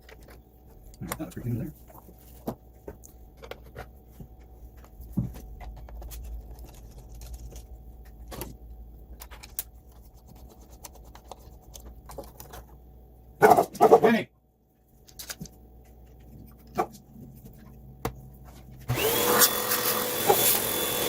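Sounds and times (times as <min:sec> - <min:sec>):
low steady hum: 0:00.0 - 0:19.0
plastic parts clicking and knocking: 0:02.4 - 0:03.9.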